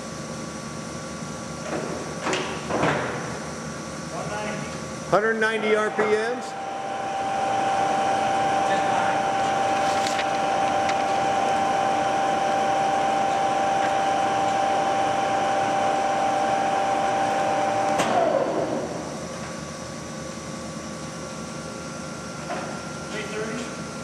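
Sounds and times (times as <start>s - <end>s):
quiet machine hum: 0.0s - 24.0s
lathe gear whine: 5.0s - 24.0s.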